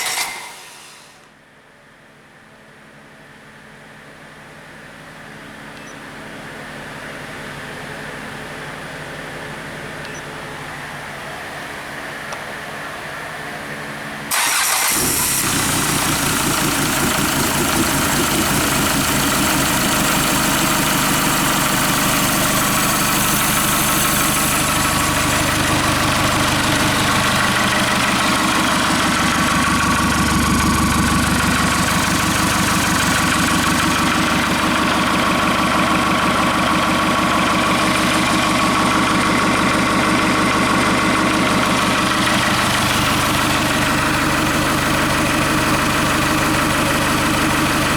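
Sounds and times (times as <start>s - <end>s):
diesel engine starting and idling: 0.0s - 1.3s, 14.2s - 47.9s.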